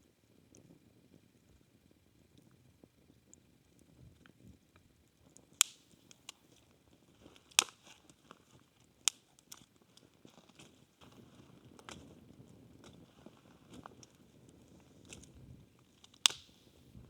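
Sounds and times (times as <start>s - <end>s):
loud sharp snaps: 5.6s - 6.4s, 16.2s - 16.8s.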